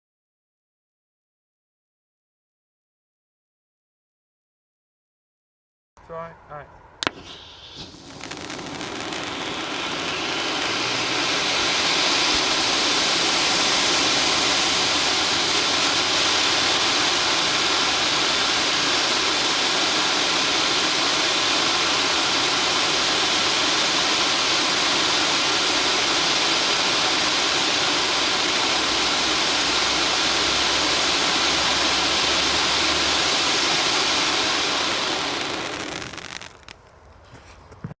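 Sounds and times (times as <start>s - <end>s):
spark fountain hissing: 7.0s - 36.9s.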